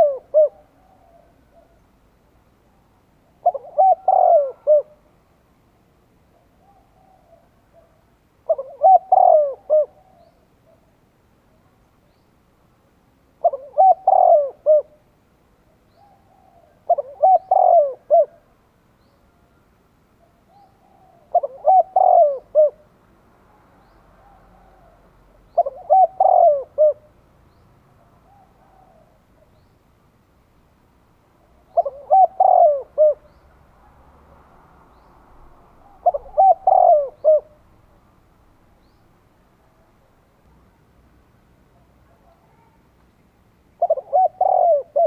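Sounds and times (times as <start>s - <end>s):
dove cooing: 0.0s - 1.8s, 3.2s - 5.1s, 6.3s - 10.9s, 13.4s - 15.0s, 15.9s - 18.5s, 20.2s - 22.8s, 24.2s - 27.1s, 28.0s - 29.6s, 31.4s - 33.4s, 35.8s - 37.6s, 43.8s - 45.0s
soft low coos: 3.4s - 5.1s.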